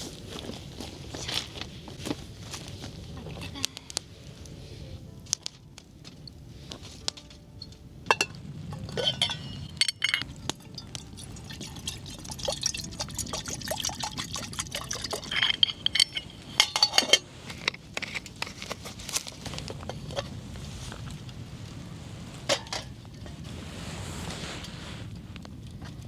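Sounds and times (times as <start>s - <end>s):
glassware clinking: 8.1s - 17.3s
drink pouring into a glass: 10.7s - 15.6s.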